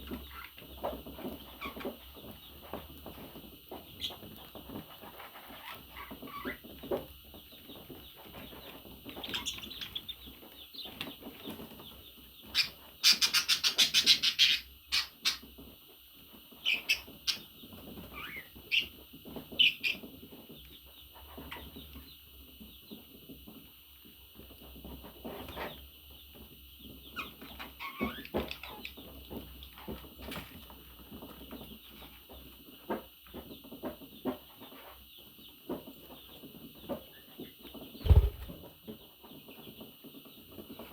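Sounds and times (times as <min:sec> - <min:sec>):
budgerigars chattering and chirping: 0:08.6 - 0:10.9, 0:12.4 - 0:15.5, 0:27.0 - 0:29.1
rapid sharp bird chirps: 0:38.0 - 0:38.6.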